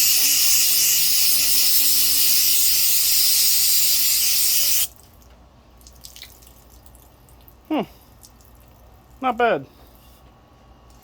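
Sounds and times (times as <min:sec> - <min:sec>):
aerosol can spraying: 0:00.0 - 0:04.9.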